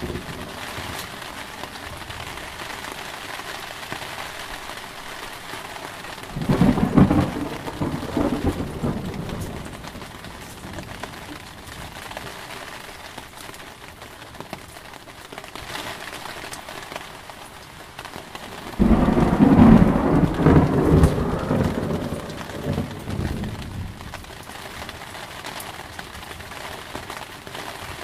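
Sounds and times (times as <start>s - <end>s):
thunder rumbling: 0.0s - 1.4s, 6.2s - 11.5s, 18.6s - 24.3s
heavy rain: 0.0s - 28.0s
loud thunder clap: 6.3s - 10.2s, 18.7s - 24.1s.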